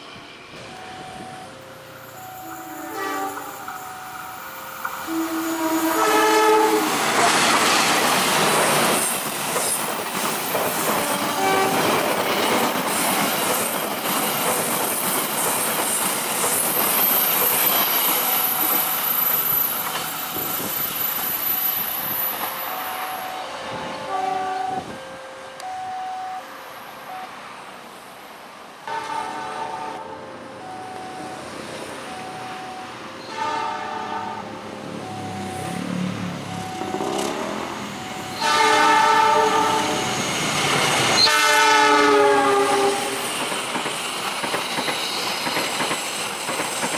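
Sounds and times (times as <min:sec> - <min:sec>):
train wheels clattering on rails: 0:00.6 - 0:24.0, 0:35.6 - 0:46.9
high wheel squeal: 0:00.6 - 0:25.0, 0:35.0 - 0:46.9
train horn blasts: 0:02.3 - 0:03.7, 0:05.0 - 0:07.6, 0:10.9 - 0:12.1, 0:23.7 - 0:25.2, 0:28.9 - 0:30.3, 0:33.2 - 0:34.7, 0:38.2 - 0:40.2, 0:41.1 - 0:43.3.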